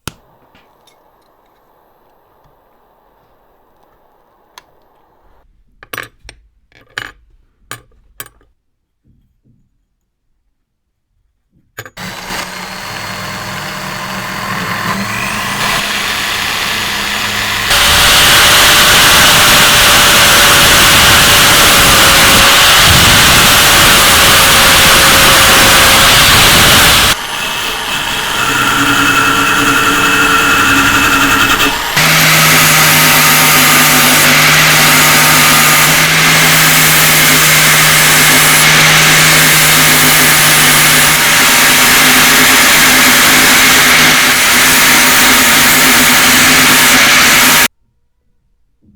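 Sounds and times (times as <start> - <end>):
power tool grinding metal: 12.0 - 47.7.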